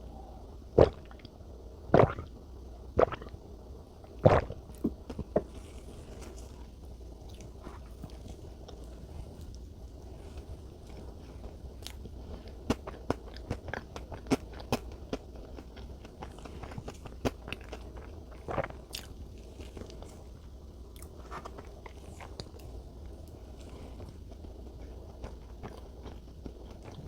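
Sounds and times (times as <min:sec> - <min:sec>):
chewing cake: 0:04.2 - 0:27.0.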